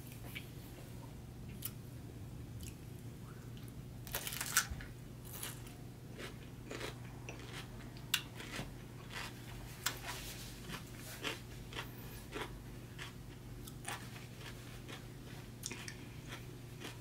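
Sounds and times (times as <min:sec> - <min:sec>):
steady low hum: 0:00.0 - 0:17.0
chewing with mouth closed: 0:06.2 - 0:10.1, 0:10.7 - 0:17.0.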